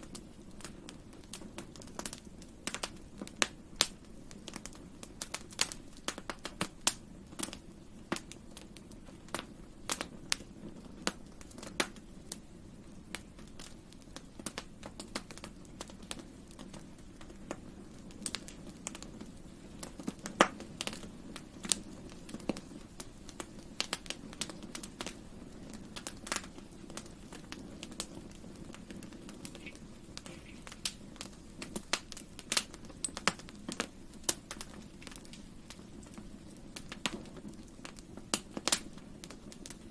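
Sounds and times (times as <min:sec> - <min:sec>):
campfire crackling and popping: 0:00.0 - 0:39.9
low rumble of flames: 0:00.0 - 0:39.9.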